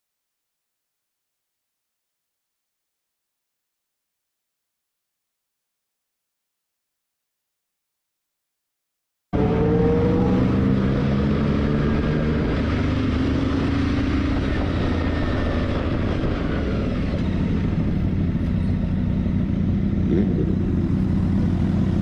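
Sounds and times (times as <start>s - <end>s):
motorcycle engine rumbling: 9.4s - 22.0s.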